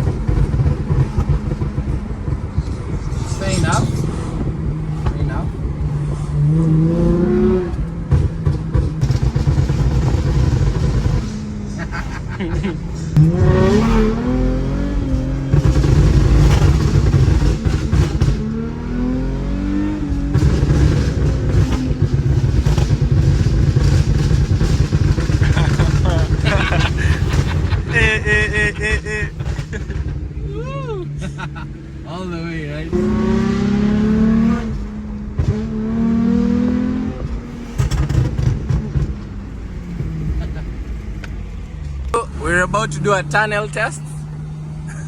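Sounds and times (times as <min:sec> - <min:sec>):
sharp exhaust cracks: 0:00.0 - 0:30.4, 0:37.2 - 0:40.2
car engine accelerating: 0:00.0 - 0:45.0.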